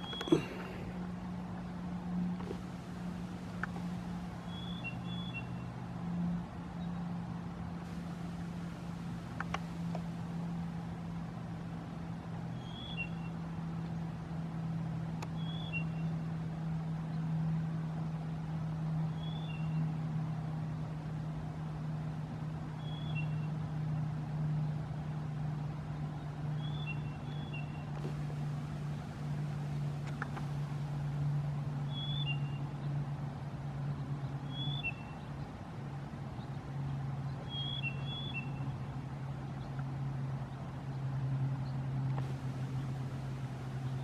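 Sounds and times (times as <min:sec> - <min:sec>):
small vehicle motor droning: 0:00.0 - 0:12.9, 0:26.6 - 0:32.6, 0:41.3 - 0:44.0.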